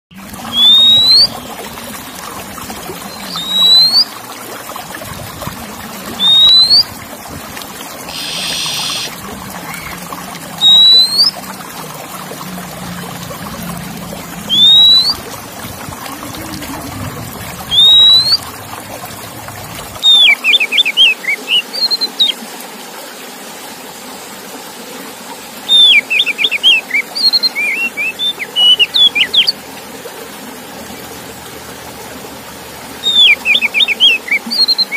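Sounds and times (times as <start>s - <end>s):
water trickling: 0.1s - 34.9s
bird singing rising whistles: 0.4s - 1.7s, 3.1s - 4.1s, 6.2s - 6.8s, 8.1s - 10.0s, 10.6s - 11.4s, 14.5s - 15.2s, 17.6s - 18.6s, 20.0s - 22.4s, 25.7s - 29.5s, 33.0s - 34.9s.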